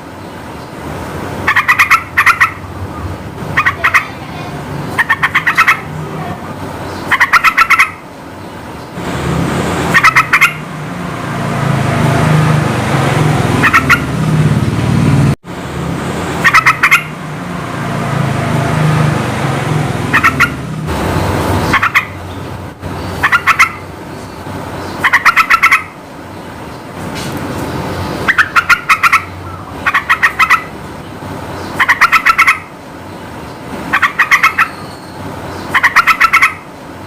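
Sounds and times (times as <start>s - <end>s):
bulbul calling in bright bursts: 1.4s - 2.7s, 3.4s - 6.0s, 6.8s - 8.1s, 9.8s - 10.7s, 13.6s - 14.2s, 16.4s - 17.2s, 20.0s - 26.0s, 27.7s - 30.7s, 31.5s - 32.7s, 33.9s - 36.7s.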